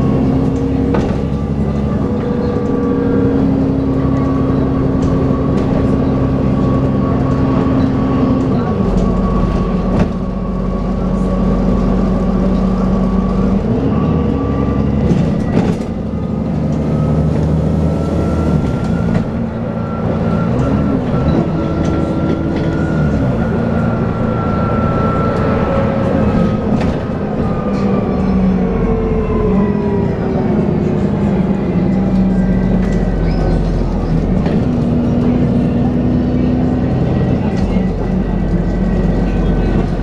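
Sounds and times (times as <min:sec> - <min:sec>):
bus engine running: 0:00.0 - 0:40.0.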